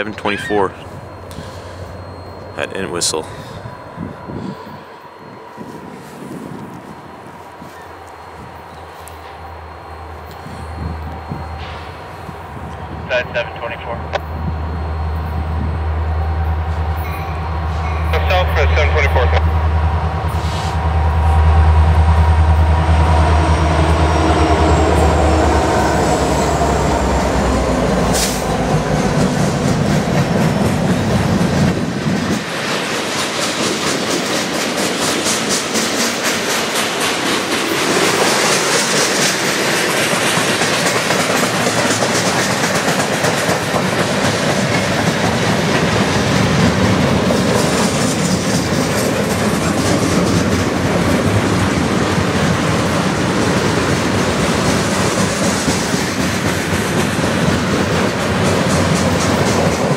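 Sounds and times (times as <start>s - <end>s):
diesel locomotive engine drone: 0.0s - 59.9s
train wheels clickety-clack: 27.2s - 59.9s.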